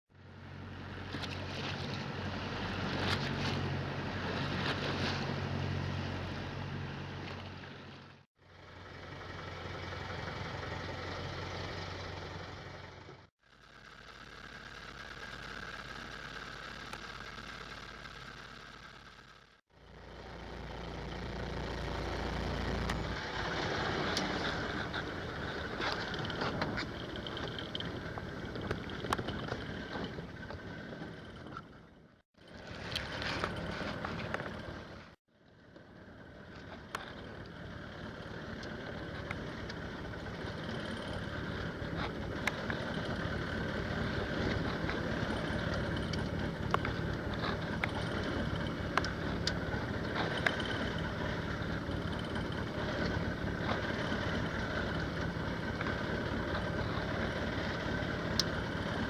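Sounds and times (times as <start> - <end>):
wind: 0.0 - 59.0
boat engine running: 0.1 - 59.0
water noise: 20.6 - 31.3.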